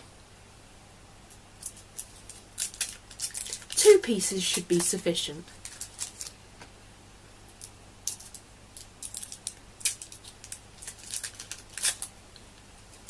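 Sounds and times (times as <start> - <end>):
gum wrappers crinkling: 1.6 - 6.4, 7.5 - 13.0.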